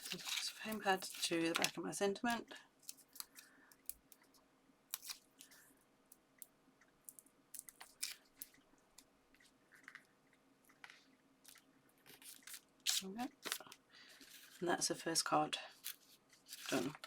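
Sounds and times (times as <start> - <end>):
paper crinkling: 0.0 - 5.6, 7.6 - 8.6, 10.7 - 14.6, 15.7 - 17.0.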